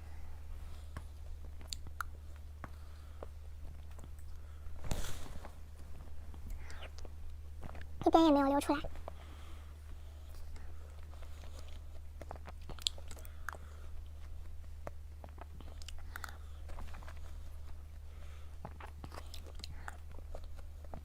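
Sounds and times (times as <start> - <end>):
low electrical hum: 0.0 - 21.0
person chewing cake: 0.7 - 4.8, 9.9 - 21.0.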